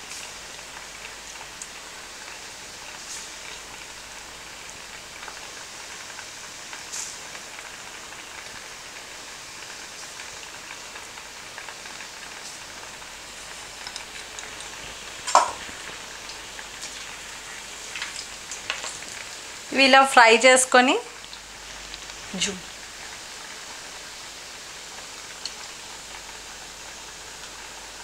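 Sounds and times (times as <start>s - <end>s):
dumplings deep-frying in oil: 0.0s - 28.0s
sharp knock: 15.3s - 15.6s.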